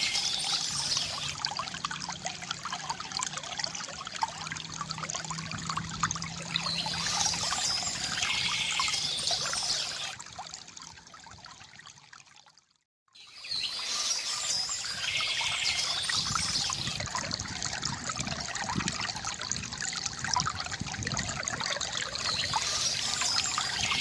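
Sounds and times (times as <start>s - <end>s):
water trickling from bamboo fountain: 0.0s - 12.8s, 13.4s - 24.0s
birds chirping: 6.6s - 10.1s, 13.3s - 17.0s.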